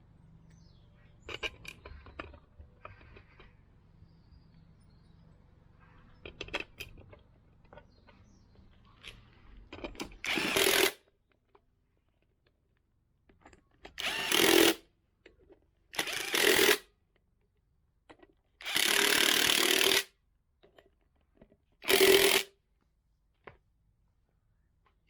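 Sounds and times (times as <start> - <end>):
handheld power tool running: 10.2 - 11.0, 14.0 - 14.8, 16.0 - 16.8, 18.6 - 20.1, 21.8 - 22.5.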